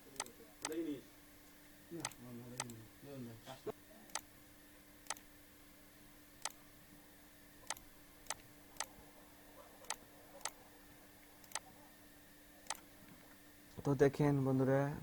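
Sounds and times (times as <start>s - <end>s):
faint steady hum: 0.0s - 15.0s
computer mouse button clicking: 7.6s - 8.9s, 11.4s - 11.7s.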